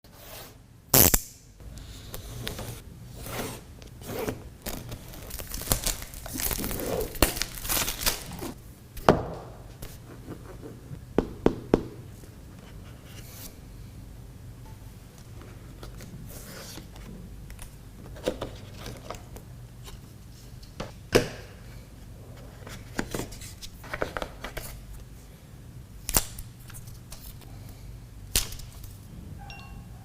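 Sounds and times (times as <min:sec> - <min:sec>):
cardboard scraping: 0:02.3 - 0:08.6
wrapping tearing and crinkling: 0:04.6 - 0:08.6.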